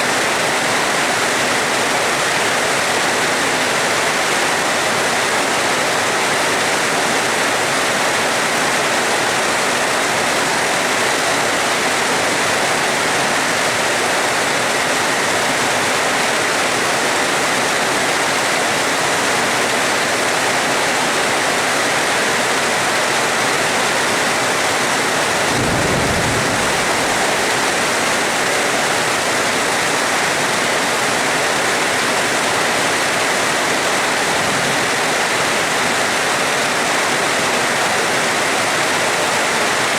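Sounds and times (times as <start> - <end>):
steady rain: 0.0 - 39.9
thunder rumble: 24.8 - 28.8.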